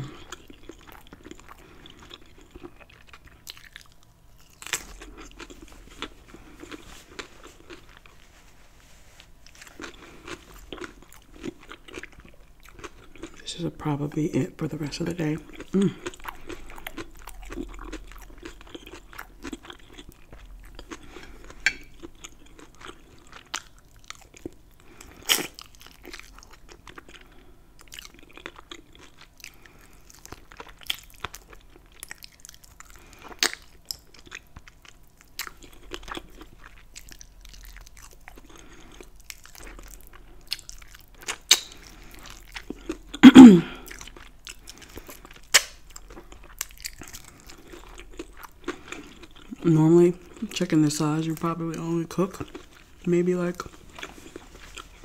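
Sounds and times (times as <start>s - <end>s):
crunchy chewing: 0.0s - 8.5s, 9.2s - 13.6s, 15.0s - 49.6s, 51.3s - 55.0s
wet mouth sounds: 42.6s - 44.8s.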